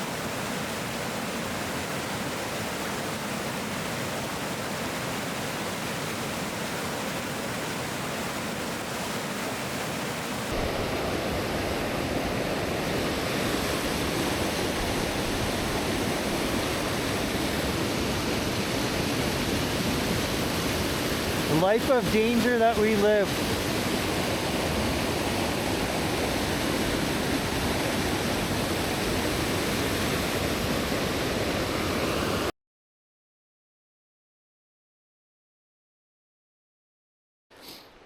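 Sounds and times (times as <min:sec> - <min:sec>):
waterfall rushing: 0:00.0 - 0:32.5.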